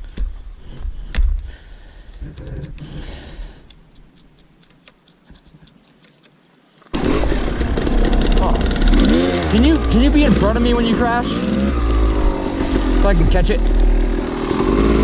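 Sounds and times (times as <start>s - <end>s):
sharp clicks and knocks: 3.6s - 6.4s
low rumble: 7.1s - 15.0s.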